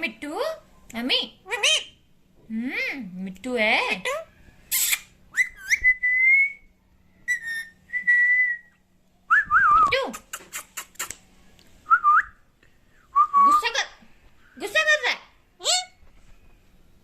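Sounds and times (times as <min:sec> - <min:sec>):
parrot whistling: 0:04.7 - 0:06.6, 0:07.3 - 0:08.7.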